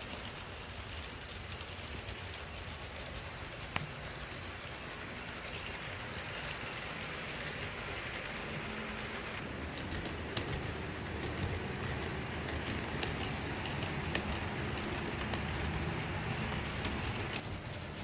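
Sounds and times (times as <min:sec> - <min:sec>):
model train rolling hiss: 0:00.0 - 0:18.0
high squeaks: 0:03.9 - 0:09.4, 0:10.4 - 0:18.0
model train click: 0:07.4 - 0:17.5.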